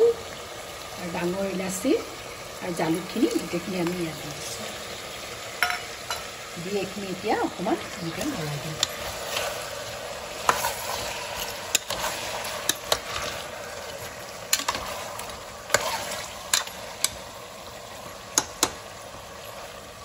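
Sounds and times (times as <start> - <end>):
food sizzling in hot oil: 0.0 - 20.0
metal spatula scraping pot: 8.2 - 17.2.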